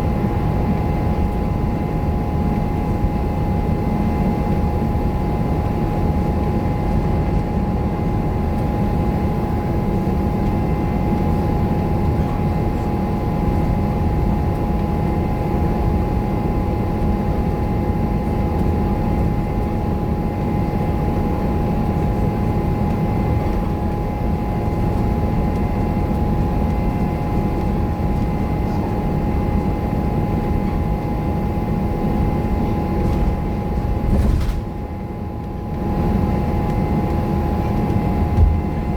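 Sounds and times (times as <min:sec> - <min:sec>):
bus engine rumble: 0:33.0 - 0:34.8.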